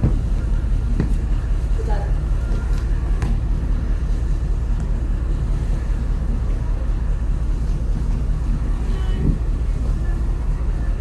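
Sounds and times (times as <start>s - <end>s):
ship low rumble: 0.0s - 11.0s.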